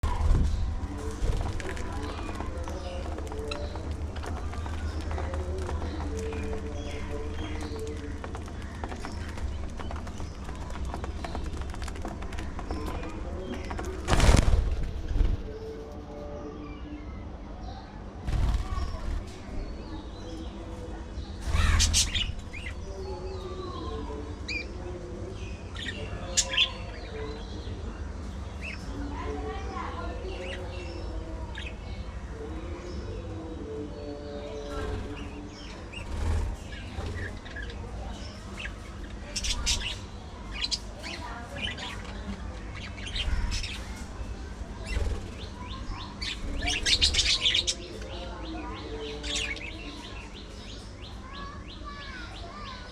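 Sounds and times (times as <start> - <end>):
budgerigars chirping and squawking: 21.4 - 24.8, 34.5 - 52.8.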